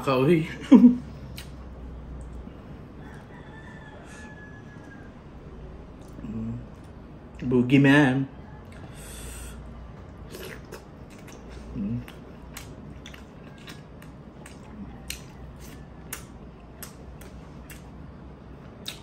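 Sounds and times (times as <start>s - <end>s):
wet mouth clicks and smacks: 1.3s - 1.6s, 10.6s - 17.9s, 18.8s - 19.0s
person chewing and sucking: 8.7s - 18.0s, 18.8s - 19.0s.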